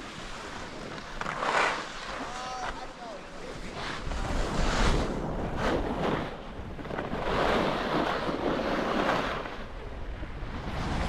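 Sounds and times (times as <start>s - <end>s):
wind buffeting microphone: 3.5s - 11.0s.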